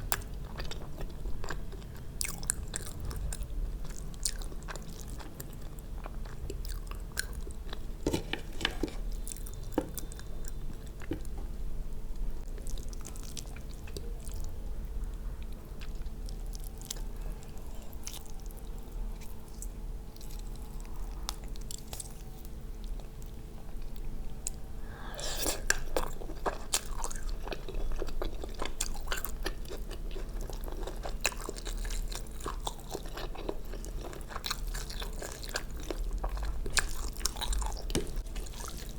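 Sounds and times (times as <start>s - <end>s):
chewing and mouth sounds: 0.0s - 11.5s, 15.4s - 38.9s.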